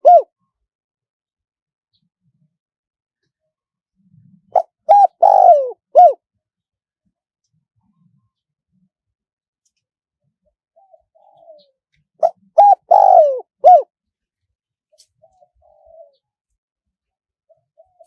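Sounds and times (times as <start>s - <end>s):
dove cooing: 0.0s - 0.3s, 4.5s - 6.2s, 10.8s - 13.9s, 15.0s - 16.3s, 17.5s - 18.0s.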